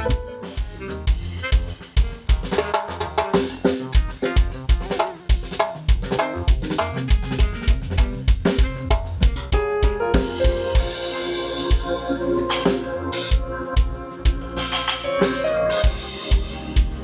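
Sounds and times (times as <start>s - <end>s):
kick drum and snare groove: 0.0s - 11.0s, 15.8s - 17.0s
chill-out band music: 0.0s - 17.0s.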